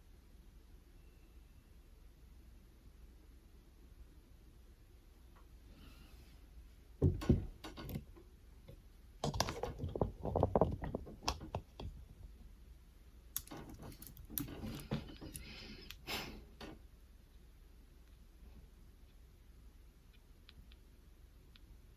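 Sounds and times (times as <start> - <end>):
hands handling small hardware: 13.4 - 16.0.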